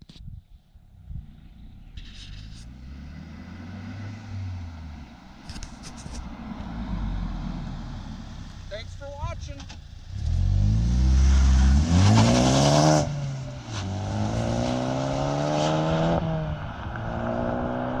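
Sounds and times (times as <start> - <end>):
car engine accelerating hard: 2.6 - 5.4, 9.7 - 18.0.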